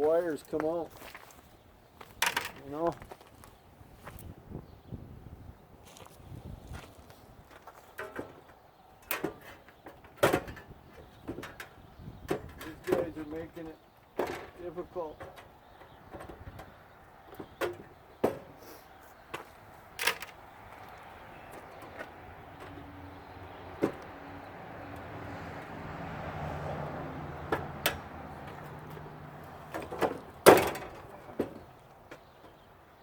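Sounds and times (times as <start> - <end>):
sharp knocks and clatters: 7.9 - 13.3, 14.2 - 18.6, 27.5 - 32.6.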